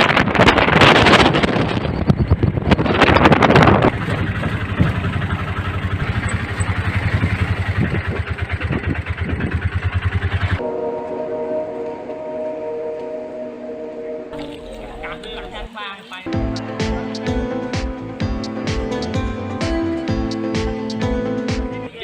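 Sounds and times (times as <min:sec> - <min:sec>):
wind noise on microphone: 0:00.0 - 0:09.6
auto rickshaw engine putter: 0:03.6 - 0:10.6.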